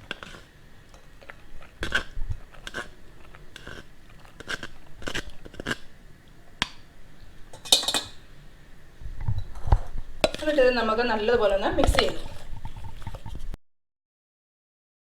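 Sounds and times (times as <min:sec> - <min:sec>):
squelching scrapes and taps in bowl: 0:09.2 - 0:13.6.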